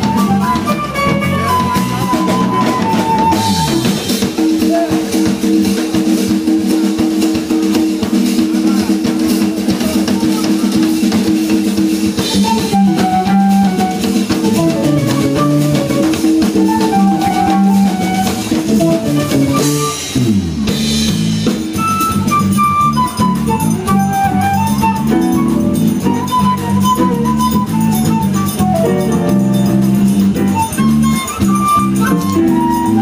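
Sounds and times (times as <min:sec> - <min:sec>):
higher melody line: 0:00.0 - 0:04.3, 0:12.2 - 0:33.0
electric bass: 0:00.0 - 0:04.4, 0:11.6 - 0:33.0
drum kit and percussion: 0:00.0 - 0:33.0
held keyboard chords: 0:12.2 - 0:33.0.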